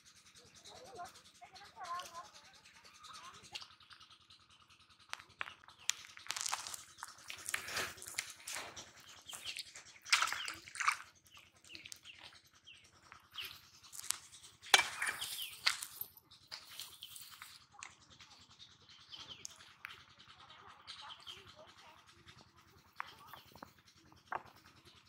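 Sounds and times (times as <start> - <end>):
small birds chirping: 0.0 - 25.0
sharp taps and rustles: 4.8 - 18.4, 22.3 - 25.0.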